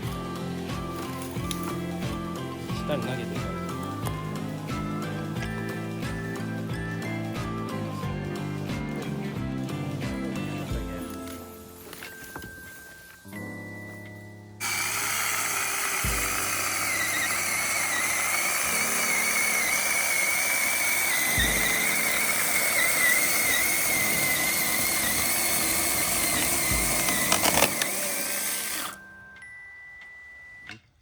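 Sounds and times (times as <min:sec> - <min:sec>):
chainsaw cutting through branch: 0:14.6 - 0:29.0.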